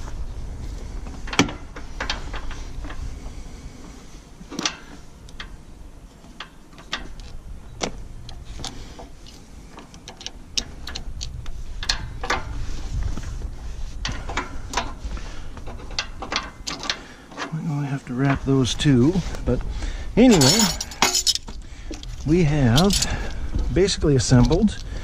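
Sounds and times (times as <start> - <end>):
metal parts clinking and knocking: 15.6 - 17.6, 20.2 - 23.4.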